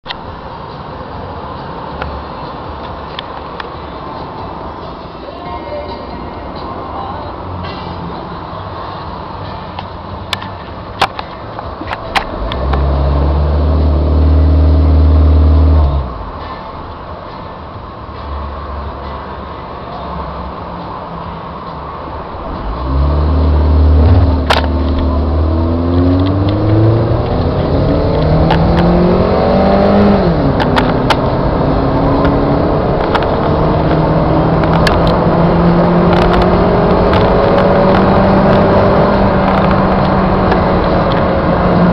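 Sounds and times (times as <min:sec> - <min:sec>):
car engine accelerating: 0:12.2 - 0:16.3, 0:22.5 - 0:41.9.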